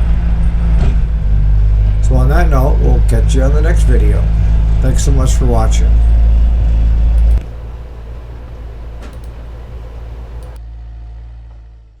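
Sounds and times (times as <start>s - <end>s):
distant engine hum: 0.0s - 10.6s
faint clicks: 6.3s - 10.6s.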